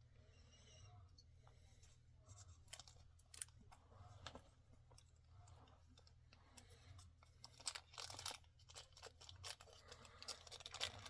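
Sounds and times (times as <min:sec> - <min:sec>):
plastic packaging crinkling: 0:07.4 - 0:11.0.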